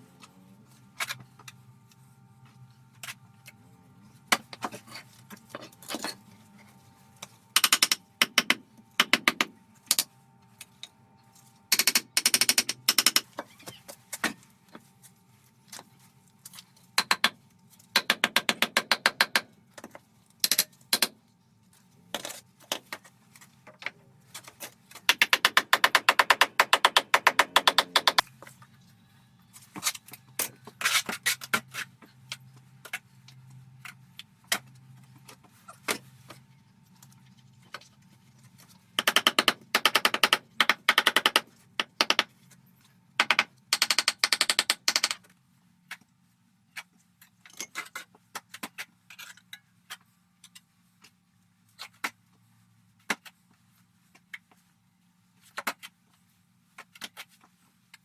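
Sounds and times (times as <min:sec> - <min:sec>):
tools knocking and chipping: 0:07.6 - 0:10.0, 0:11.7 - 0:13.6, 0:17.0 - 0:21.2, 0:25.0 - 0:28.3, 0:39.0 - 0:42.3.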